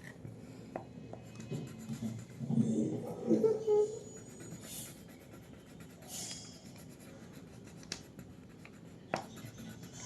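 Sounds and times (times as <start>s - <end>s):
colouring strokes scratching paper: 3.4s - 10.0s.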